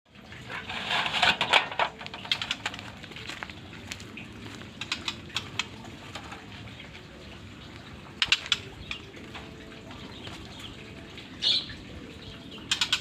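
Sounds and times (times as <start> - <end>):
bird hopping on perches: 1.8 - 10.8.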